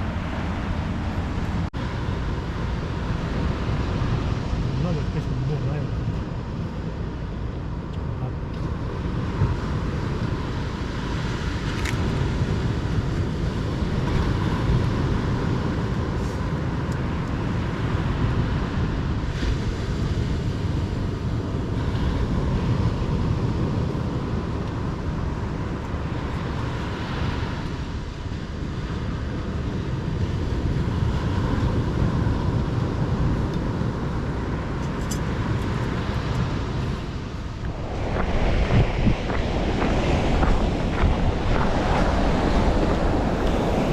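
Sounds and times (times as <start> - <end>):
low outdoor rumble: 0.0 - 19.0, 28.1 - 43.9.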